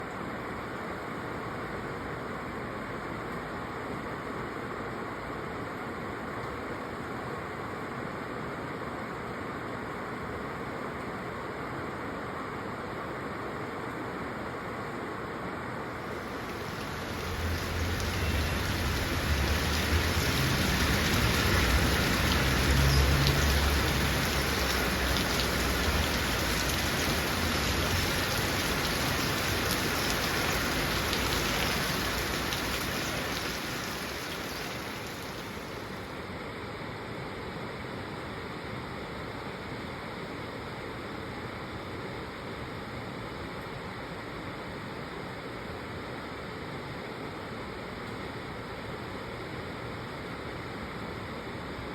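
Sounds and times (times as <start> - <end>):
heavy rain falling: 16.0 - 36.1.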